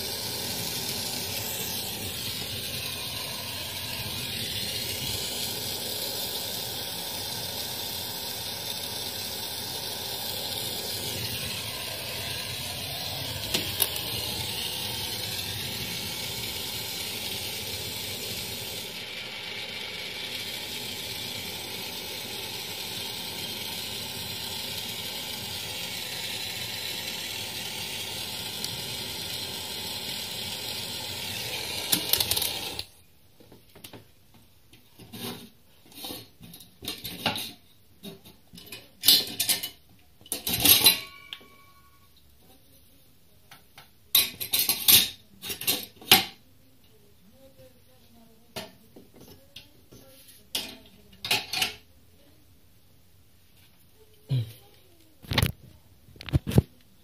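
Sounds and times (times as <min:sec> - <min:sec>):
gas torch hissing: 0:00.0 - 0:33.0.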